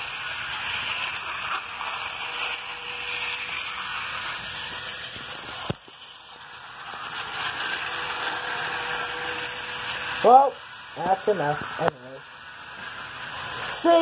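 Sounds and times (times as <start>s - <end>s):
wheels rattling on rail: 0.0s - 10.4s
model train motors whirring: 0.0s - 14.0s.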